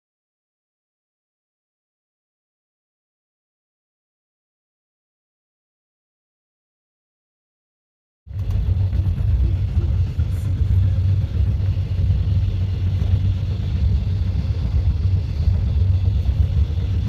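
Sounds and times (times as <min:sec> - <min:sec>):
train rumbling at speed: 0:08.3 - 0:17.0.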